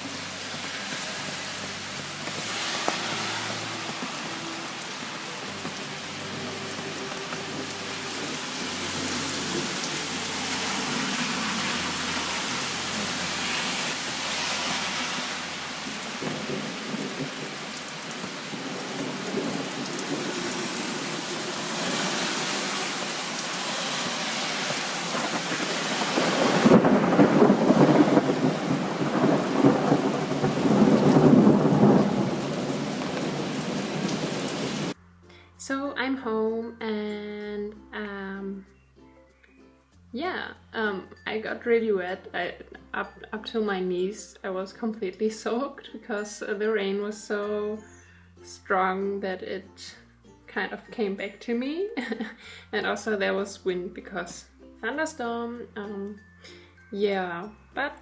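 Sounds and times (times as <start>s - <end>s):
heavy rain on plastic umbrella: 0.0s - 35.0s
thunder rumbling: 15.6s - 21.9s, 24.7s - 35.0s.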